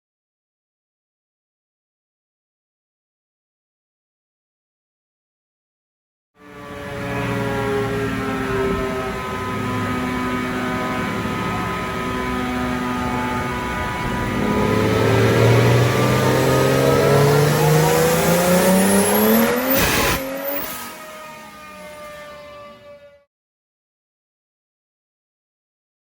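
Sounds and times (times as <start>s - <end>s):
car engine revving: 6.4s - 23.1s
engine rush on throttle close: 6.4s - 23.2s.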